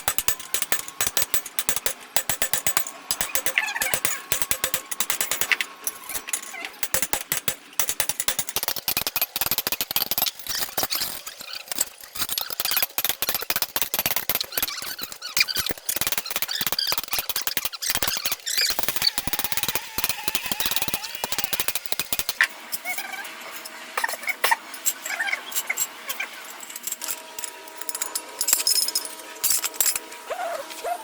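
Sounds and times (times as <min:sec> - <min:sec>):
metal crackling and sharp clicks: 0:00.0 - 0:22.8.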